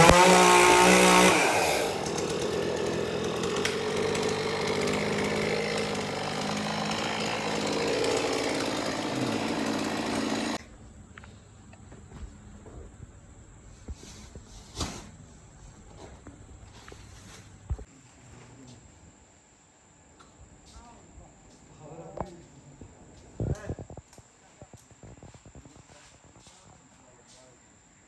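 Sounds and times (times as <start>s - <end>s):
chainsaw engine running: 0.0s - 10.6s.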